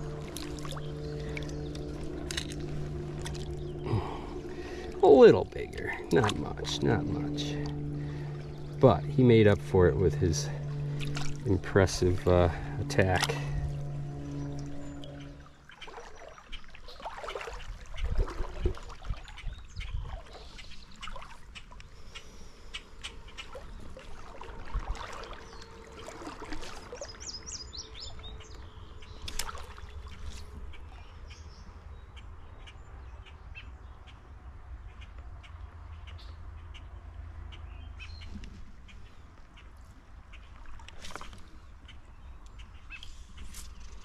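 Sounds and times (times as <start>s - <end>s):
steady low rumble: 0.0s - 17.0s
small birds chirping: 0.3s - 12.9s, 26.9s - 44.0s.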